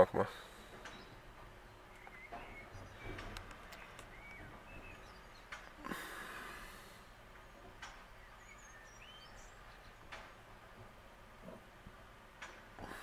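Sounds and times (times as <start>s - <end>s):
high bird chirps: 1.8s - 5.8s, 8.0s - 10.1s
light clicks: 3.1s - 4.4s.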